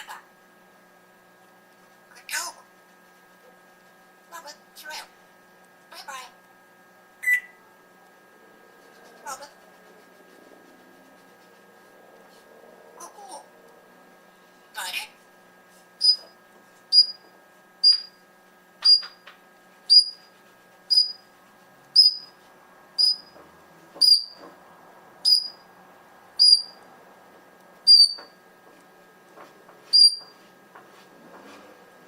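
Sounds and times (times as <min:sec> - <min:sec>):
parrot whistling short high notes: 0:07.2 - 0:07.6, 0:27.9 - 0:28.2.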